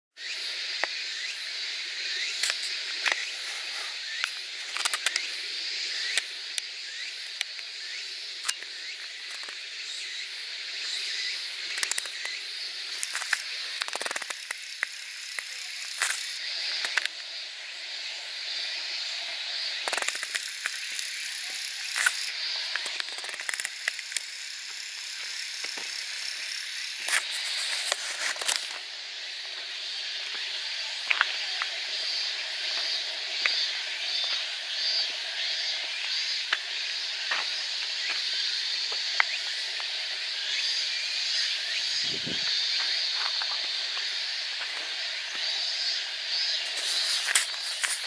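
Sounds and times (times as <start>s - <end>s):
high-pitched insect chorus: 0.2s - 48.0s
short clicks and rustles: 46.7s - 48.0s.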